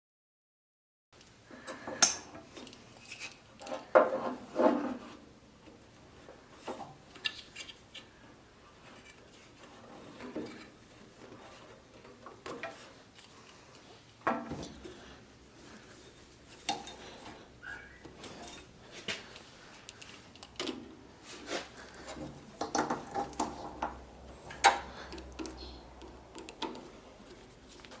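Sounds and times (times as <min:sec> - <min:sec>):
metal tools clanking: 0:18.2 - 0:18.7.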